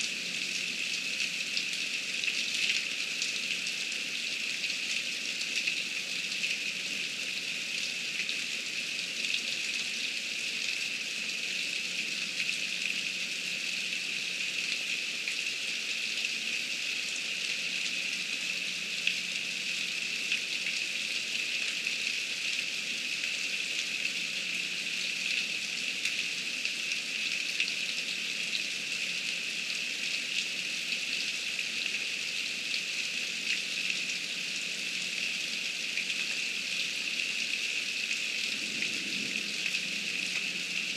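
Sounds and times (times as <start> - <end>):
heavy rain falling: 37.8 - 40.9.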